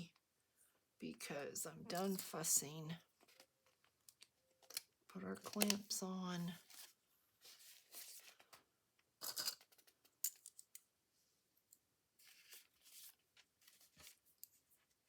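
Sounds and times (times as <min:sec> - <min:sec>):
paper rustling and scraping: 0:06.4 - 0:08.6, 0:12.2 - 0:14.8.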